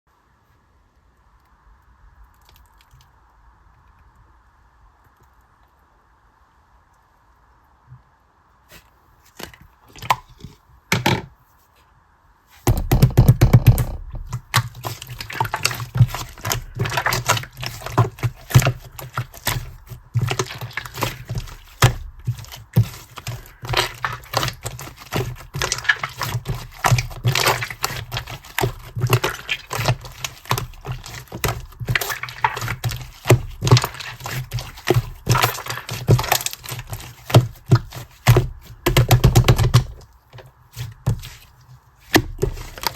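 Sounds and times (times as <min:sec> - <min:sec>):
slime squishing with wet clicks: 0:14.2 - 0:42.9.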